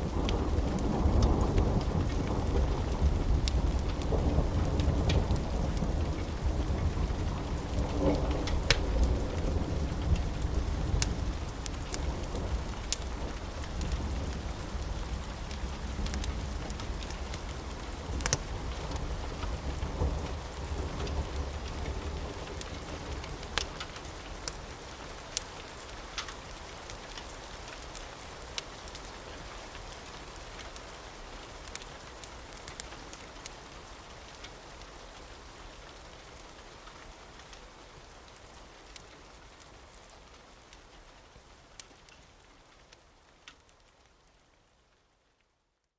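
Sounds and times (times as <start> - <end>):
low rumble of thunder: 0.0 - 25.4
steady rain: 0.0 - 45.9.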